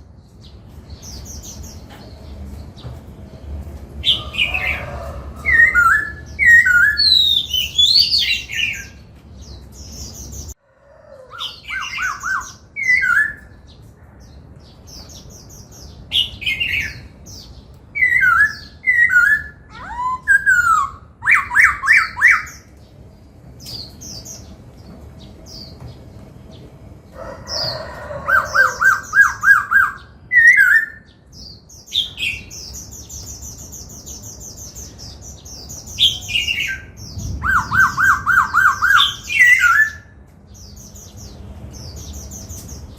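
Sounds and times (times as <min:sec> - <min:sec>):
bird singing varied phrases: 0:04.1 - 0:09.0, 0:11.3 - 0:13.8, 0:15.0 - 0:22.7, 0:28.4 - 0:42.9.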